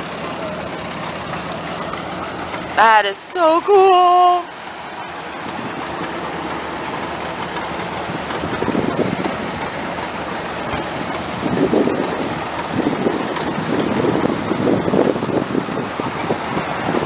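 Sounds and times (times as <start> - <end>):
tractor engines pulsing: 0.0 - 17.0
wind buffeting microphone: 5.2 - 17.0.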